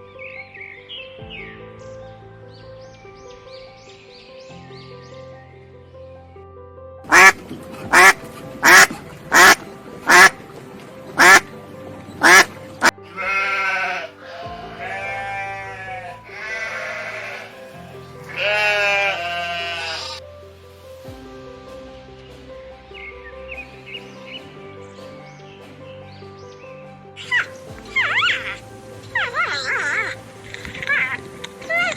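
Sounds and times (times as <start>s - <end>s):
background music: 0.0s - 31.9s
duck quacking: 7.1s - 10.4s, 11.2s - 11.5s, 12.2s - 12.5s
goat bleating: 13.1s - 17.6s, 18.3s - 20.2s.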